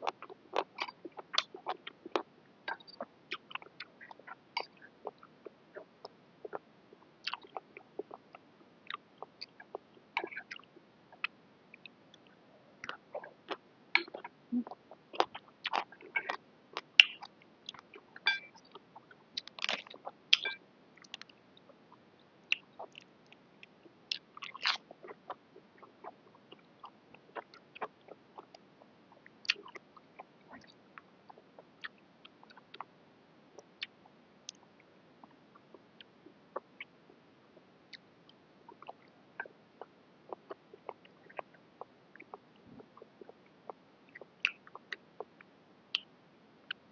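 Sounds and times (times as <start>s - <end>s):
mouth clicks and smacks: 0.0s - 6.6s, 7.2s - 21.4s, 22.5s - 28.6s, 29.2s - 32.9s, 33.6s - 34.7s, 37.9s - 43.4s, 44.1s - 46.1s
person chewing noodles: 12.8s - 17.8s.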